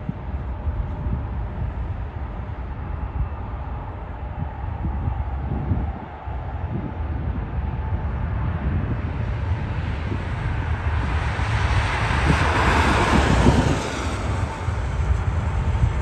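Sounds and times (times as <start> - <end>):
wind buffeting microphone: 0.0 - 16.0
jet airliner passing: 7.0 - 16.0.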